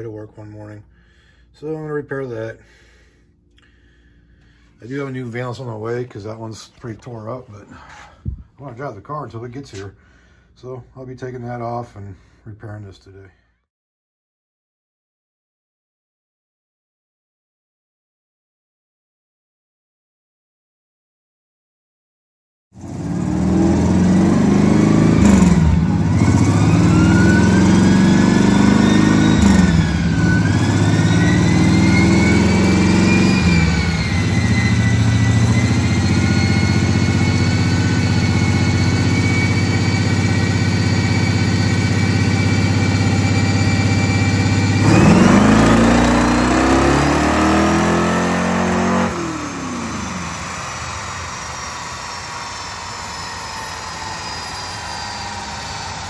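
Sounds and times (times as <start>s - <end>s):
car engine revving on a dyno: 22.8s - 56.0s.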